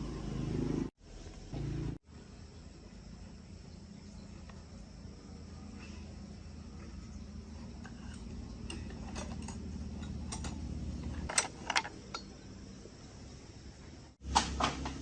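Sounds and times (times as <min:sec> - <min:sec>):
low steady hum: 0:00.0 - 0:15.0
metal tools clinking: 0:07.8 - 0:12.4.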